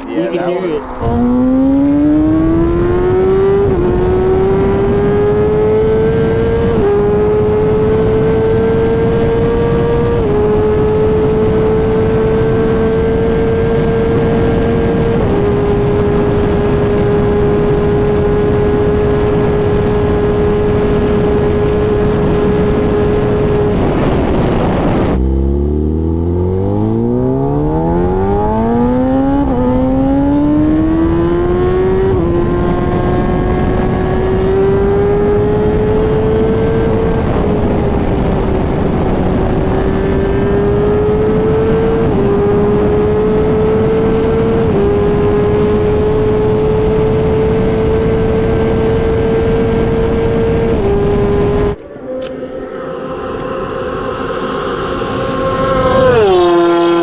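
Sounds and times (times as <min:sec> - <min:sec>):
motorcycle engine revving: 0:00.9 - 0:57.0
wind rushing: 0:50.6 - 0:57.0.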